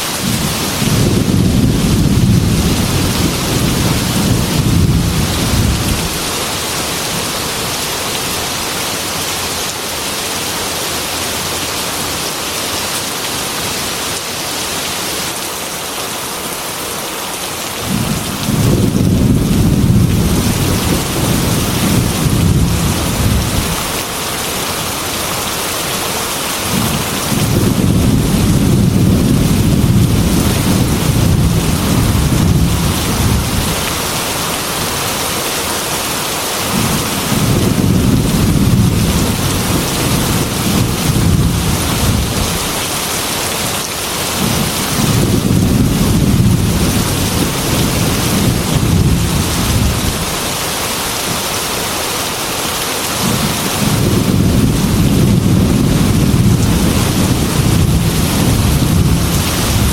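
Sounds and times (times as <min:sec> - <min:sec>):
heavy rain falling: 0:00.0 - 0:59.9
rolling thunder: 0:00.2 - 0:06.6, 0:17.8 - 0:24.0, 0:26.7 - 0:34.2, 0:36.7 - 0:42.9, 0:44.3 - 0:50.4, 0:53.2 - 0:59.9.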